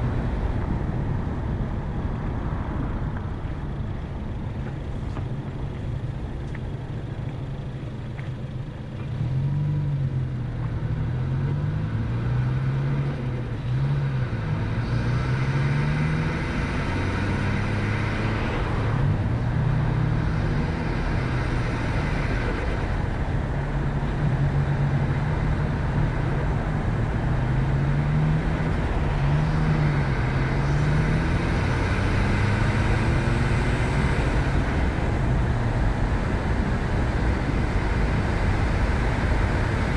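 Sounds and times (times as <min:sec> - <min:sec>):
car engine accelerating: 0:02.6 - 0:39.9.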